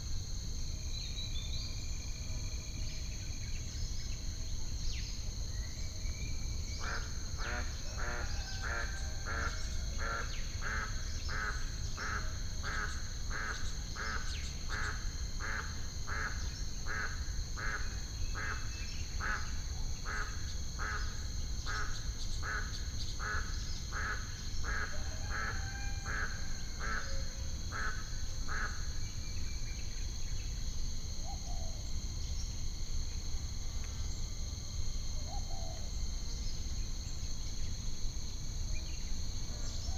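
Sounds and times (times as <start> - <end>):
crickets droning: 0.0 - 39.9.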